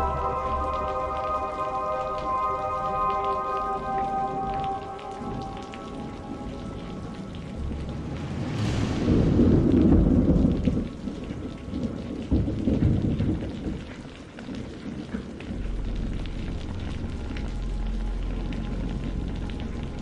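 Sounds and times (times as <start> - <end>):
steady rain: 0.0 - 20.0
thunder crack and rumble: 4.5 - 20.0.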